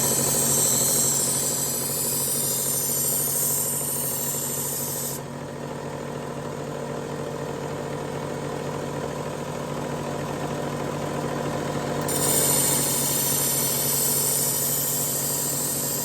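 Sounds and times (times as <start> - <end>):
knife grinding on belt: 0.0 - 5.2, 12.1 - 16.0
belt sharpener motor hum: 0.0 - 5.3, 12.0 - 16.0.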